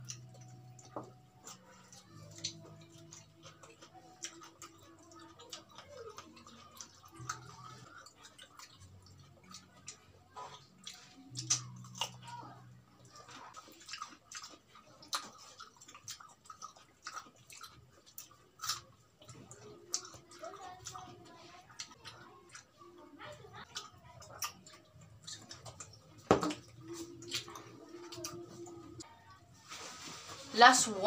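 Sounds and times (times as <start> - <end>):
wet chewing: 0.0 - 29.4
crunching cucumber bites: 13.1 - 21.1
mouth clicks and smacks: 23.7 - 28.4.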